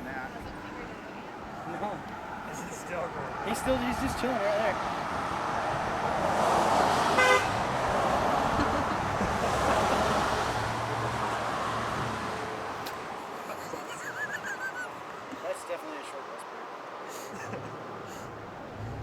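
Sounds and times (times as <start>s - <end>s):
motor vehicle passing: 1.5s - 15.3s, 17.4s - 19.0s
short horn toot: 7.2s - 7.5s.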